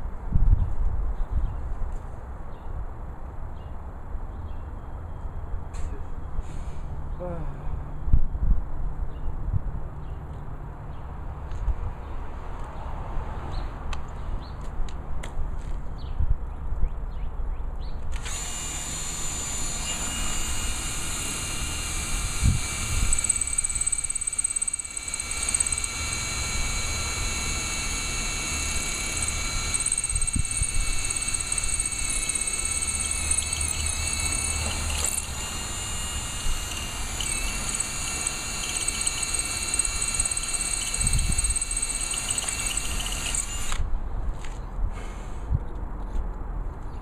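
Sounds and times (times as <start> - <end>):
wind rumbling on microphone: 0.1 - 1.9
power drill whining: 18.2 - 43.8.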